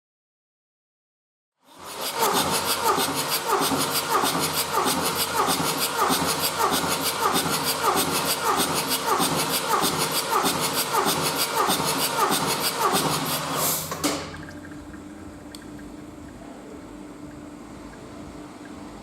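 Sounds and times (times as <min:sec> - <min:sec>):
diesel engine clattering: 0:02.2 - 0:14.8.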